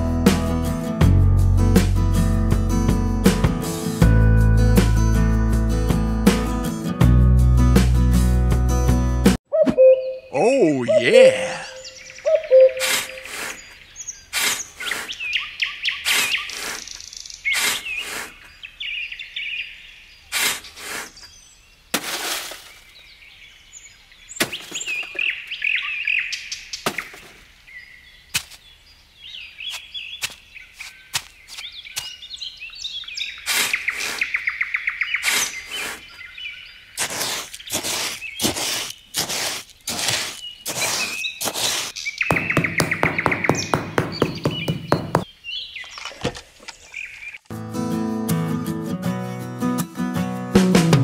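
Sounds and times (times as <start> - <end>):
small birds chirping and singing: 9.5 - 21.9, 22.6 - 47.5.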